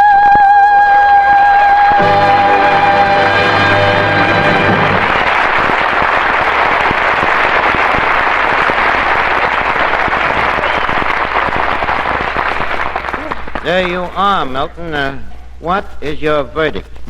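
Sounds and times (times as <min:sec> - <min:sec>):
audience applauding: 0:00.7 - 0:14.7.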